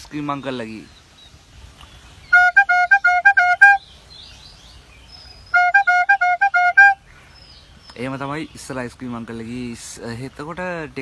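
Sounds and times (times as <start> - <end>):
small horn tooting two-note call: 2.4 - 3.8, 5.6 - 7.0.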